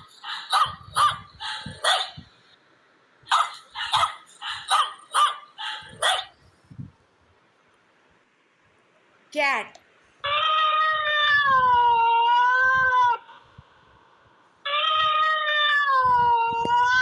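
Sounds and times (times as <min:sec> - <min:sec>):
dog barking: 0:00.2 - 0:02.2, 0:03.3 - 0:06.3.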